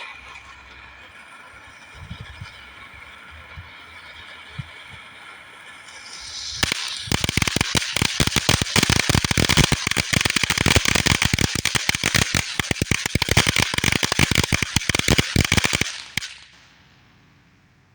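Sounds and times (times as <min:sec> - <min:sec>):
firework fountain hissing: 0:00.0 - 0:17.9
rapid crackling pops: 0:04.7 - 0:17.3.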